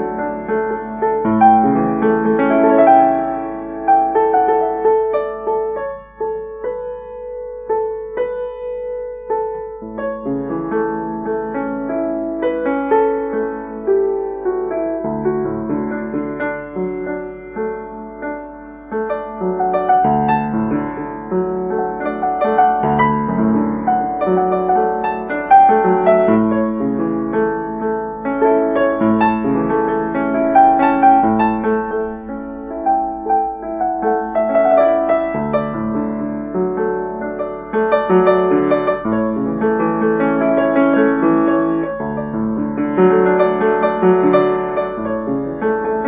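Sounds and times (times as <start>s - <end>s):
slow gentle piano music: 0.0s - 46.0s.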